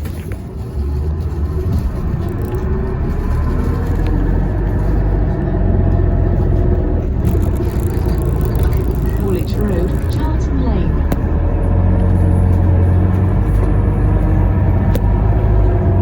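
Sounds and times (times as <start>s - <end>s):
bus engine rumble: 0.0s - 16.0s
faint steady hum: 8.4s - 11.2s.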